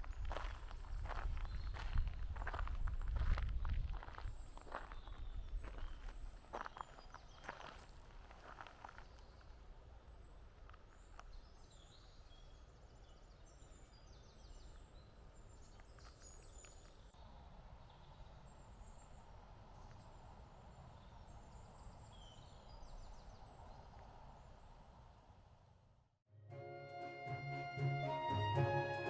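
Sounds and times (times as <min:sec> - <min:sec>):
small birds chirping: 0:03.6 - 0:07.8, 0:10.2 - 0:24.6.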